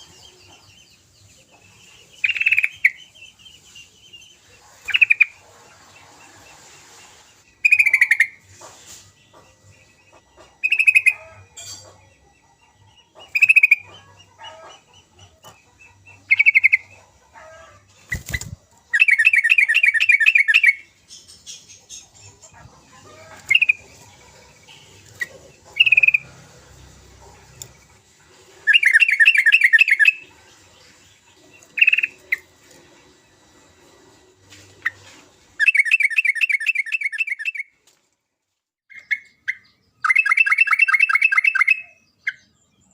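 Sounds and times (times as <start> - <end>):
bird chattering: 2.2 - 3.1, 7.6 - 8.5, 10.1 - 12.0, 13.2 - 26.4, 28.6 - 32.5.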